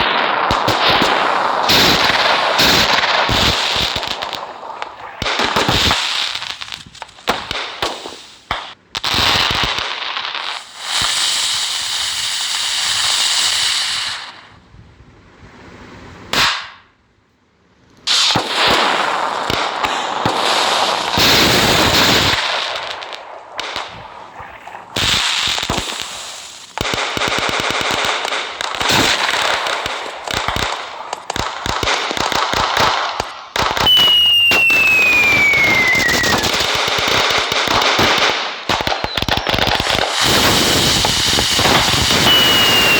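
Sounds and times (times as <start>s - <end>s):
firecrackers banging and crackling: 0.0s - 14.4s, 16.3s - 16.9s, 18.0s - 42.9s
firecracker hissing: 0.0s - 14.6s, 18.0s - 42.9s
falling whistle: 33.8s - 36.6s, 42.1s - 42.9s.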